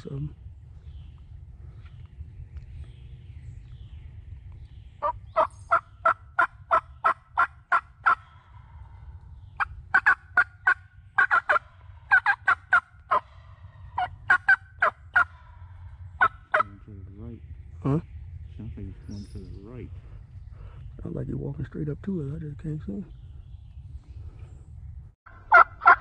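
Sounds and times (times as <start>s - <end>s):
low rumble: 0.0s - 25.8s
wild turkey yelping: 5.0s - 8.9s, 9.5s - 16.8s, 25.3s - 26.0s.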